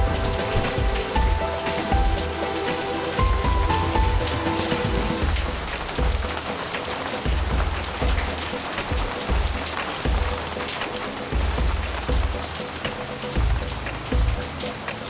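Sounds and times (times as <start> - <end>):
heavy rain pouring: 0.0 - 15.0
raindrops ticking on surfaces: 0.0 - 15.0.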